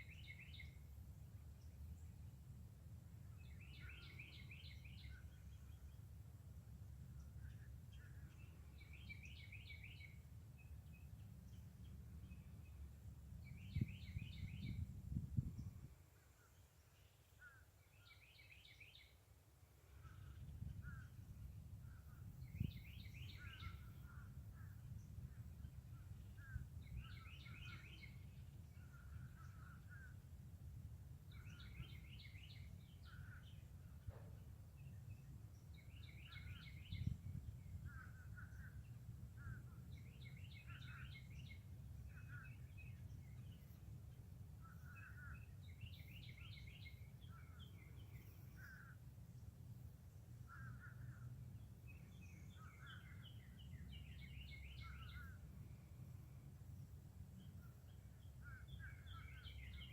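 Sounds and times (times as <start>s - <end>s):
songbird singing high song: 0.0s - 59.9s.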